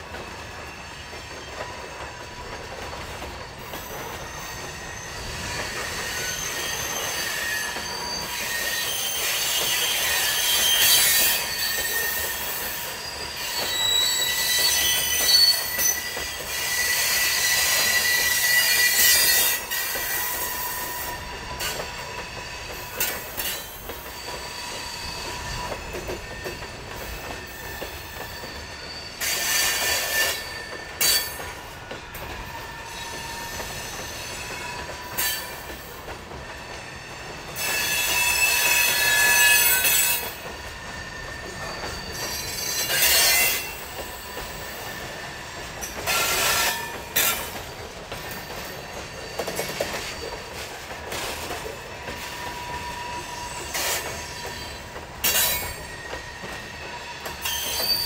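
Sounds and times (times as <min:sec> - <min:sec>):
track creaking: 0:00.0 - 0:58.0
train cars rolling: 0:00.0 - 0:58.0
train wheels squealing: 0:00.0 - 0:58.0.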